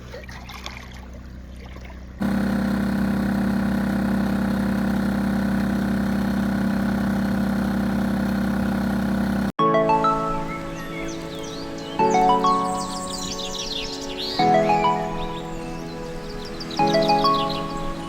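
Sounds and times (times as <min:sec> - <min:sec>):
faint water: 0:00.0 - 0:02.2, 0:09.8 - 0:13.6
boat engine idling: 0:02.0 - 0:09.6.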